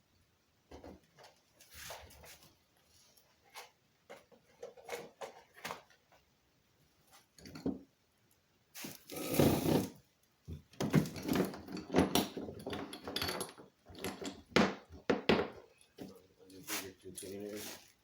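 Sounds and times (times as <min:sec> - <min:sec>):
rustling sliding noise: 0:08.8 - 0:10.0, 0:16.6 - 0:18.0
plastic objects knocking and clattering: 0:10.4 - 0:16.2.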